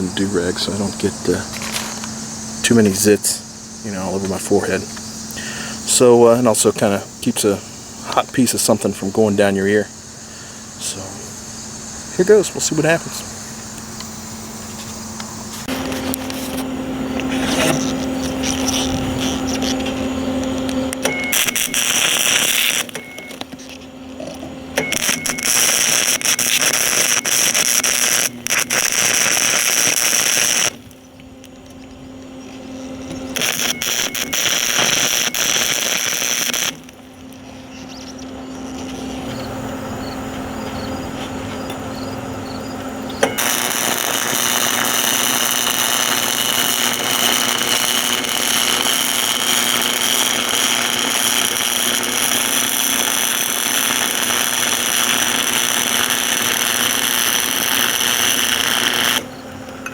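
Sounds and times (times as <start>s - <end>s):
welder arc crackling: 0.0s - 9.9s, 10.6s - 59.9s
low hum: 9.9s - 56.9s.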